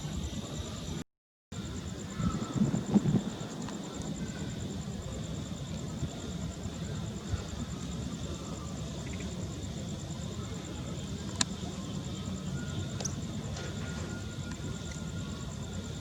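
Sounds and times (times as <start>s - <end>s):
pulsing insect trill: 0.0s - 1.0s, 1.6s - 16.0s
low rumble: 2.0s - 5.4s.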